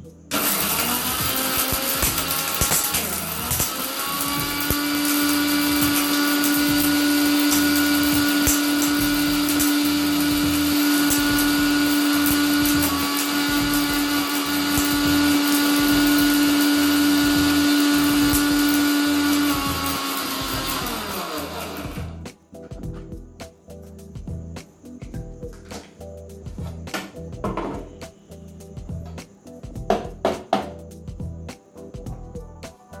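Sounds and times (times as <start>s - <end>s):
mixer grinder motor running: 0.3s - 22.2s.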